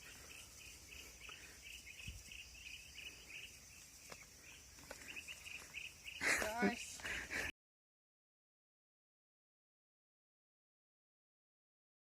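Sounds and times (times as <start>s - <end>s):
crickets chirping: 0.0s - 7.5s.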